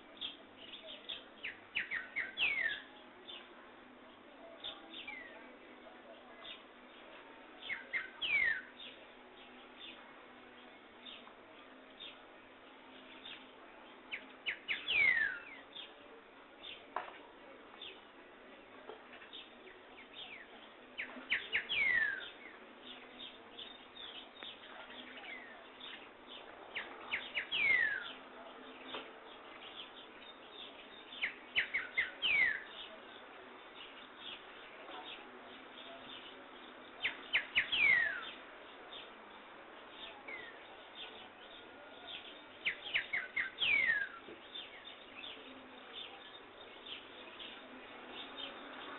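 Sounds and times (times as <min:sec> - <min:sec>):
faint bird chirps: 0:19.3 - 0:48.9.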